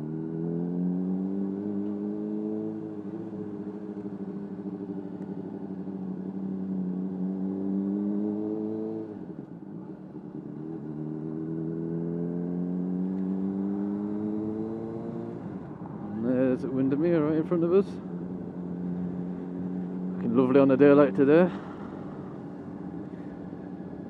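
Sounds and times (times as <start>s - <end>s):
motorcycle engine revs climbing: 10.4s - 15.4s.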